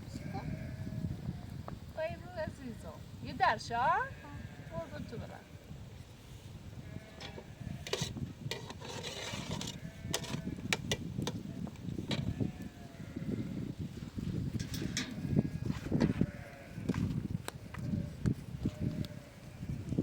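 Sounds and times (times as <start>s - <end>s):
rubbing of hard objects: 7.2s - 12.4s.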